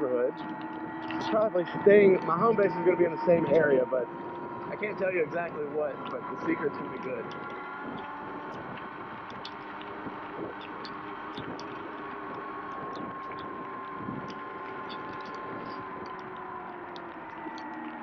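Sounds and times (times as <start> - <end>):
electric motor whine: 0.0 - 18.0
raindrops ticking: 4.1 - 18.0.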